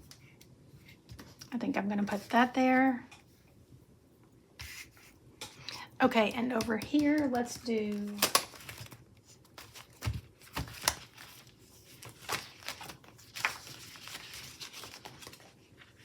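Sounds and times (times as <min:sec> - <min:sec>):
stickers peeling with taps and clicks: 0:06.4 - 0:08.9
paper rustling: 0:06.9 - 0:16.0.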